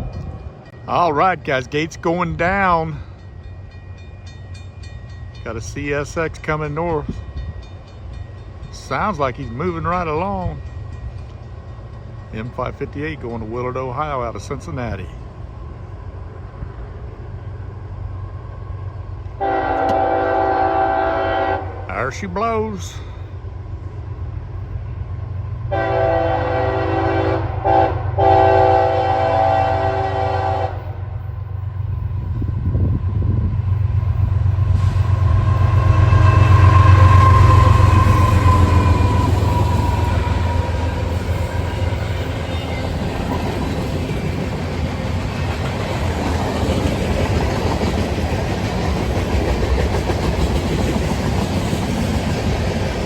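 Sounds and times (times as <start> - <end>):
train horn chord: 19.4 - 21.9, 25.7 - 31.0, 34.8 - 42.5
freight cars rumbling past: 30.8 - 53.0.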